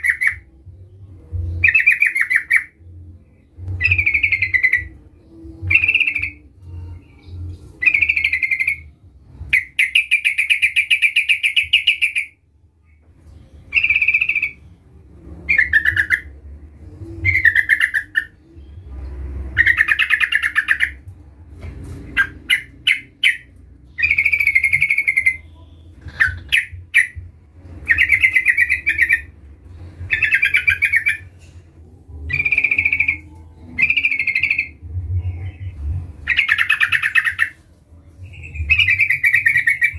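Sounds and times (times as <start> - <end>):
bulbul singing bubbly phrases: 0.0 - 12.4, 13.6 - 21.0, 32.0 - 37.6.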